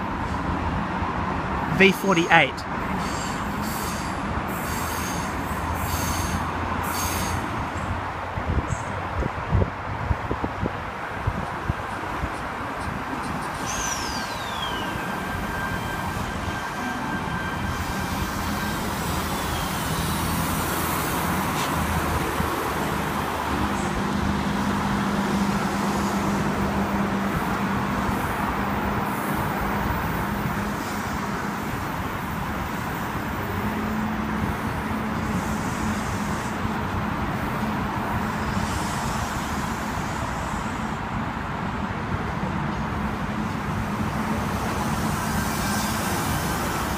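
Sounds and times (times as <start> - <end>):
road traffic noise: 0.0 - 46.9
electric train rumble: 2.6 - 46.9
brief falling squeal: 13.6 - 20.1.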